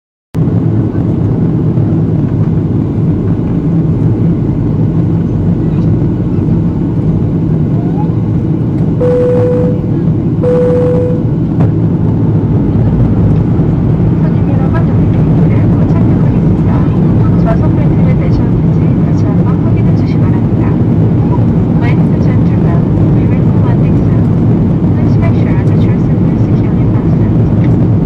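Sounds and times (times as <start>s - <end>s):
airplane engines droning: 0.4s - 28.0s
low hum: 0.4s - 28.0s
short steady tones: 9.0s - 11.3s.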